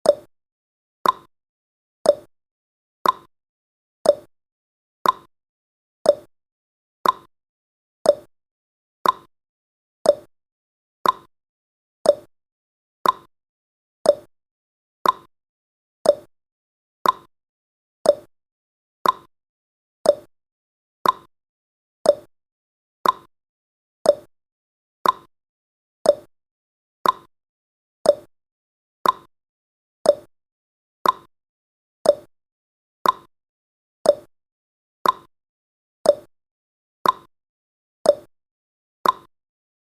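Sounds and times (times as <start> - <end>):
clock ticking: 1.0 - 1.3, 3.0 - 3.3, 5.0 - 5.3, 7.0 - 7.3, 9.0 - 9.3, 11.0 - 11.3, 13.0 - 13.3, 14.1 - 14.3, 15.0 - 15.3, 16.1 - 16.3, 17.0 - 17.3, 18.1 - 18.3, 19.0 - 19.3, 20.1 - 20.3, 21.0 - 21.3, 22.1 - 22.3, 23.0 - 23.3, 24.1 - 24.3, 25.0 - 25.3, 26.1 - 26.3, 27.0 - 27.3, 28.1 - 28.3, 29.0 - 29.3, 30.1 - 30.3, 31.0 - 31.3, 32.1 - 32.3, 33.0 - 33.3, 34.1 - 34.3, 35.0 - 35.3, 36.1 - 36.3, 37.0 - 37.3, 38.1 - 38.3, 39.0 - 39.3.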